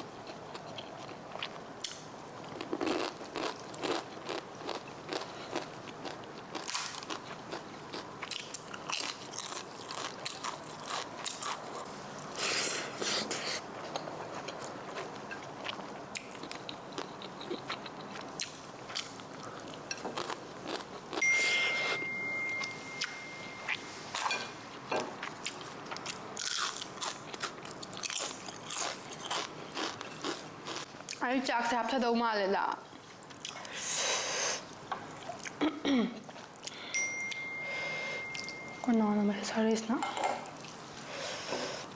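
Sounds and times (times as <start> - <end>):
crunching and chewing: 0.2 - 21.2, 25.2 - 31.2
steady high tone: 21.2 - 24.5, 36.8 - 39.4.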